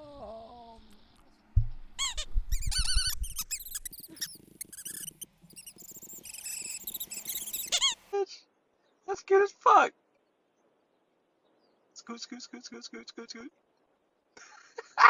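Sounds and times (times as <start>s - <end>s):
small birds chirping: 0.0s - 8.1s, 10.0s - 12.7s.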